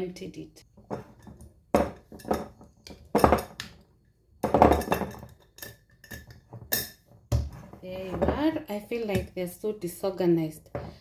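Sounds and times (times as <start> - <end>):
jars knocking and clinking: 0.7 - 3.8, 4.4 - 9.4.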